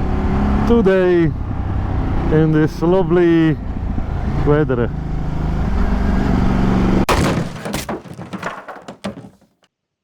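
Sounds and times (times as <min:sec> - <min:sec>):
sudden crash: 0:07.1 - 0:09.4
clattering: 0:07.1 - 0:09.6.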